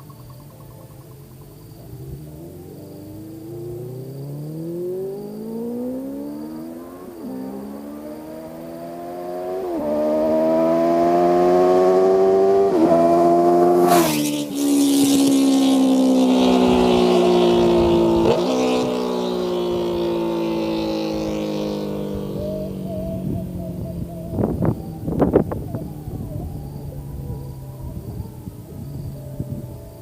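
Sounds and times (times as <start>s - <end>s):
motorcycle accelerating past: 1.8s - 29.5s.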